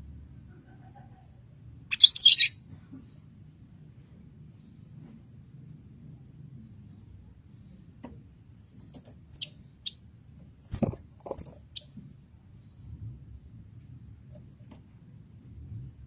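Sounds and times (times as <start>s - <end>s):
bird chips and clicks: 1.9s - 2.5s.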